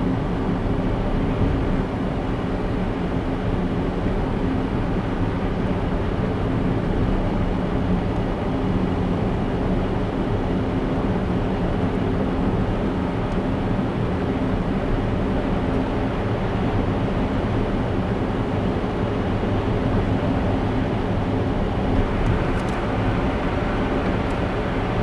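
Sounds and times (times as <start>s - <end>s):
car road and engine noise: 17.5s - 25.0s.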